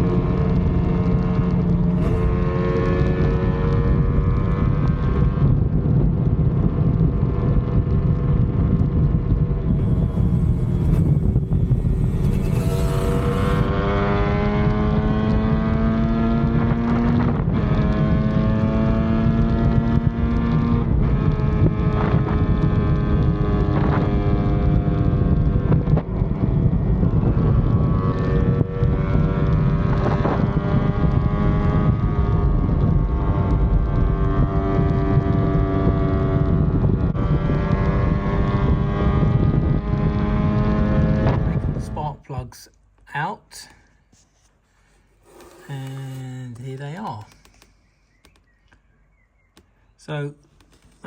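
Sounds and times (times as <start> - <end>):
wind noise on microphone: 0.0 - 42.2
motorcycle engine pulling under load: 1.9 - 3.1, 9.6 - 14.9.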